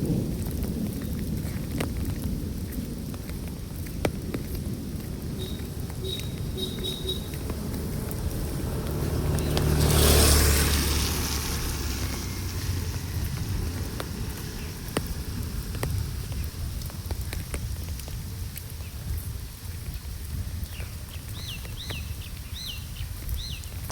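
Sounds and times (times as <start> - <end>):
steady rain: 0.0 - 23.9
sharp drips: 4.9 - 18.7
vehicle passing: 5.1 - 16.6.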